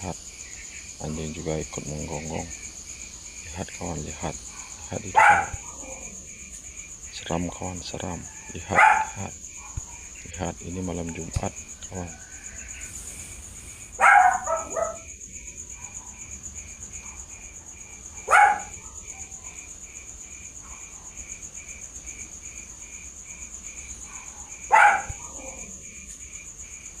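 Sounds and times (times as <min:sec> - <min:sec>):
insect chirps: 0:00.0 - 0:27.0
insects trilling: 0:00.0 - 0:27.0
dog barking: 0:04.5 - 0:06.1, 0:08.4 - 0:10.0, 0:14.0 - 0:15.1, 0:18.2 - 0:19.6, 0:24.0 - 0:25.7.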